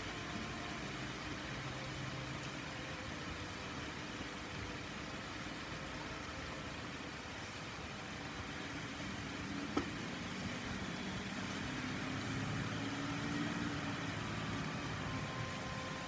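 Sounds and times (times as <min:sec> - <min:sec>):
rain hissing on pavement: 0:00.0 - 0:16.0
vehicle engine passing by: 0:10.4 - 0:15.8.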